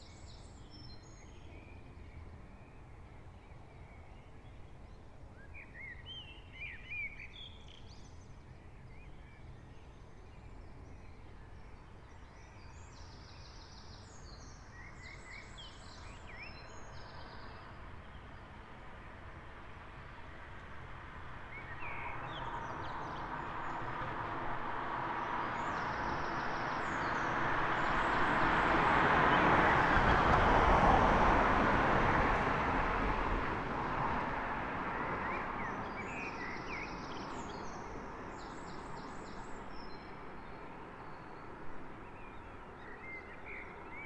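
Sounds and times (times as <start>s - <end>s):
road vehicle passing: 21.0s - 41.0s.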